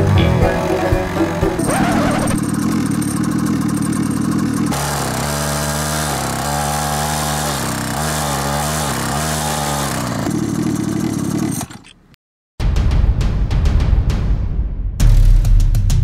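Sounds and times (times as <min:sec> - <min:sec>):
small motorbike engine running: 0:00.0 - 0:12.1
wheel churning in sand: 0:01.2 - 0:12.0.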